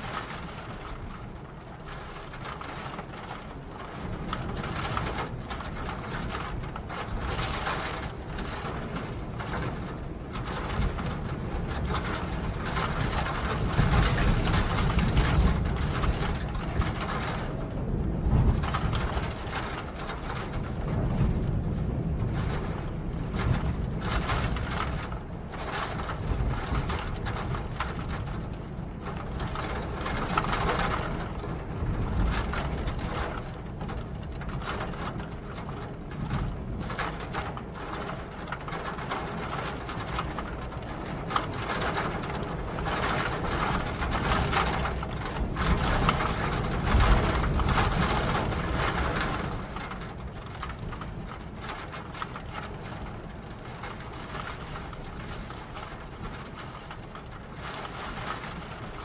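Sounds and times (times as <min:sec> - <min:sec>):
rain pattering: 0:00.0 - 0:59.0.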